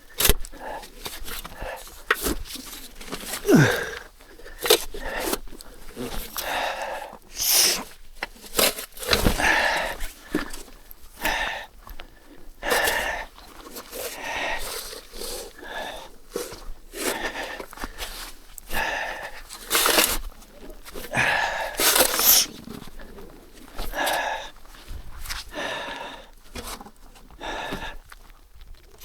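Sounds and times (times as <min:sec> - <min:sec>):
person breathing hard: 0:03.1 - 0:07.9, 0:09.2 - 0:10.5, 0:11.2 - 0:26.4, 0:27.2 - 0:28.1.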